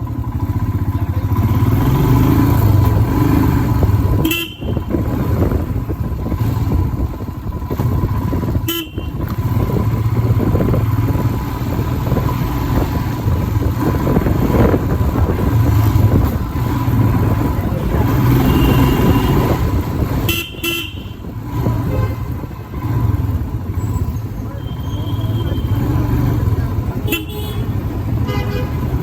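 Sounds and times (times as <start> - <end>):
motorcycle engine running: 0.0 - 29.0
road and wind noise: 0.0 - 29.0
horn toots: 4.1 - 5.4, 8.5 - 9.7, 17.9 - 23.2, 24.5 - 29.0.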